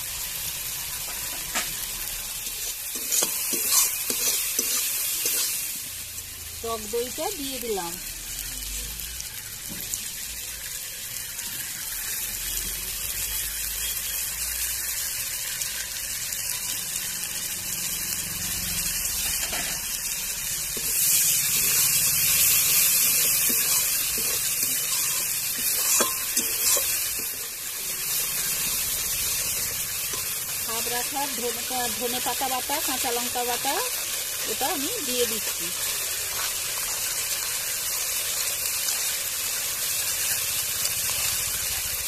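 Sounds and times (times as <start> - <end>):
masala sizzling in oil: 0.0 - 42.0.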